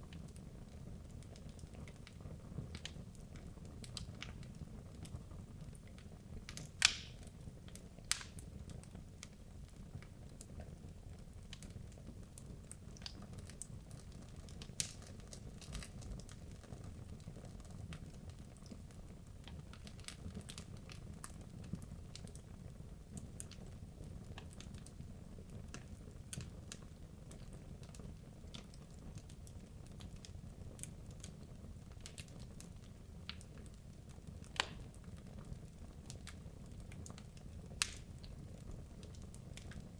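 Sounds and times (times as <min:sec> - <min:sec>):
wood crackling and popping: 0:00.0 - 0:39.9
fire rumbling: 0:13.0 - 0:39.9.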